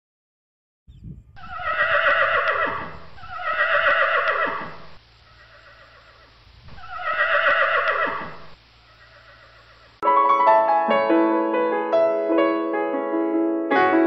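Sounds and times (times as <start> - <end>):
animal calling in quavering calls: 1.4 - 10.0.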